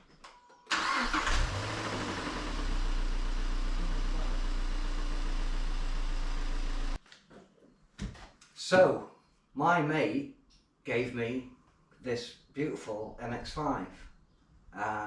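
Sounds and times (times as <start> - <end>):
car engine starting and idling: 0.7 - 7.0.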